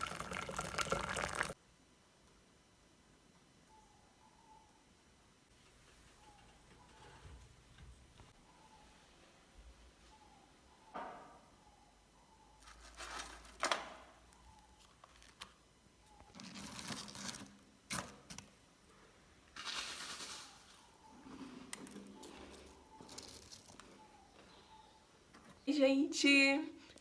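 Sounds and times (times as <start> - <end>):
rustling: 12.6 - 15.6.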